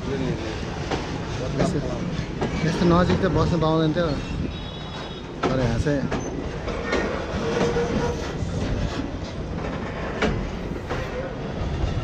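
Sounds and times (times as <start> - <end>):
train rumble: 0.0 - 12.0
wheels clattering over rail joints: 0.0 - 12.0.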